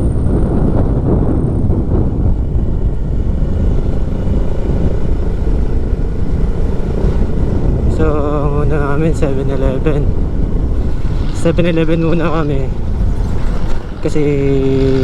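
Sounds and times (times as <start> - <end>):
motorcycle engine drone: 0.0 - 15.0
wind rumble on microphone: 0.0 - 15.0.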